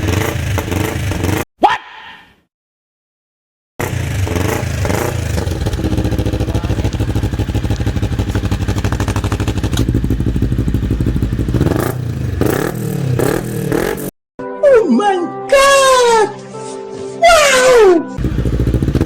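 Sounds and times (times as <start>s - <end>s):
motorcycle engine idling: 3.8s - 14.1s, 18.2s - 19.0s.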